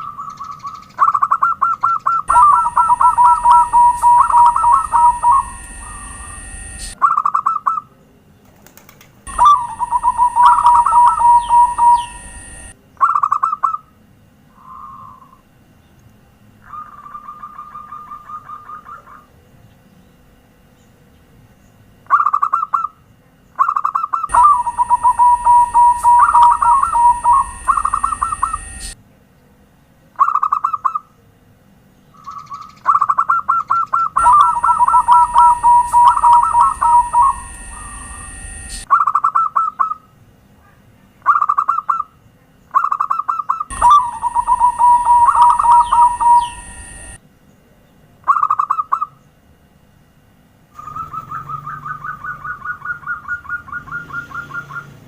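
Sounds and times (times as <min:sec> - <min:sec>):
dove cooing: 0:00.0 - 0:07.8, 0:09.3 - 0:13.8, 0:14.5 - 0:15.4, 0:16.6 - 0:19.3, 0:23.6 - 0:29.0, 0:32.2 - 0:40.0, 0:42.8 - 0:47.2, 0:50.8 - 0:55.0.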